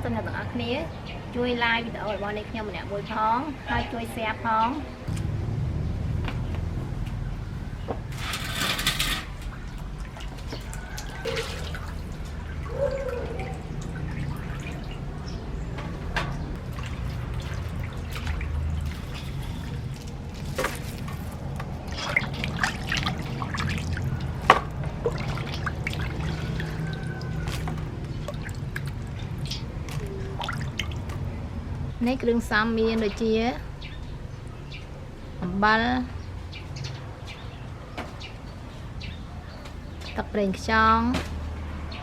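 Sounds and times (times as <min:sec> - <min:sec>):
liquid dripping and pouring: 0:08.3 - 0:31.6.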